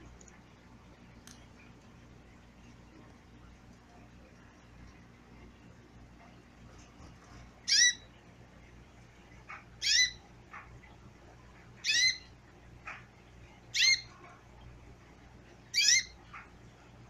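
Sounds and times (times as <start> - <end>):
faint bird chirps: 7.7 - 8.1, 9.8 - 10.2, 11.8 - 12.3, 13.7 - 14.1, 15.7 - 16.2.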